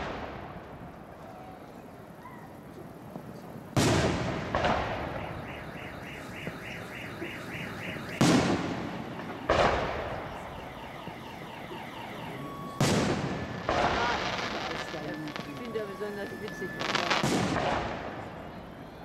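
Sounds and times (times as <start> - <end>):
pulsing high tone: 5.0 - 17.2.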